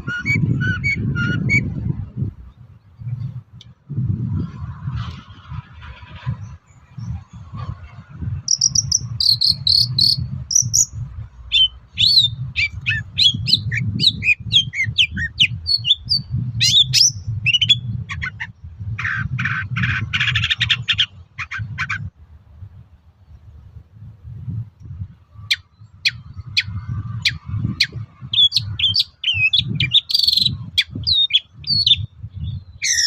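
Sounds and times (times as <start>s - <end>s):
low rumble: 0.0s - 14.0s
bird singing: 8.4s - 22.0s, 25.4s - 33.0s.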